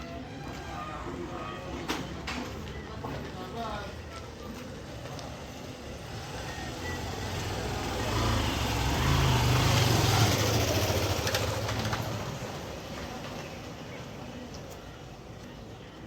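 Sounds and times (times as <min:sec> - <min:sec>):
vehicle engine passing by: 0:05.9 - 0:13.0.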